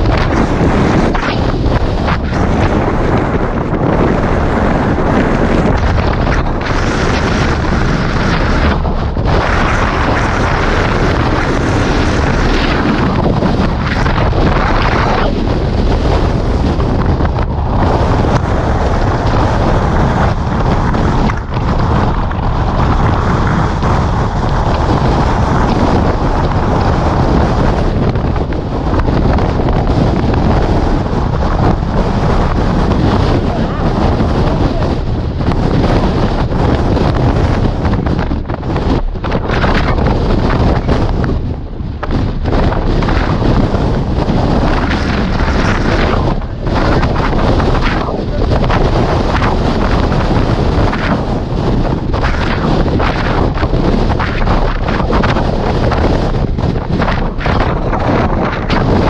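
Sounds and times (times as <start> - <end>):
wind blasting microphone: 0.0 - 59.0.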